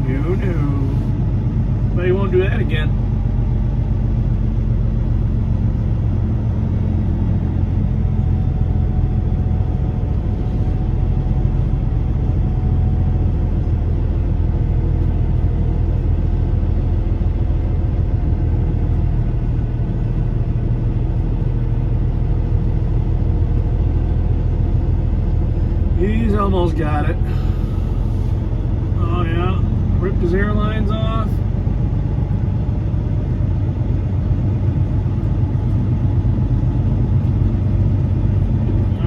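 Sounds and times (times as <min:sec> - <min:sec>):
diesel truck engine running: 0:00.0 - 0:39.0.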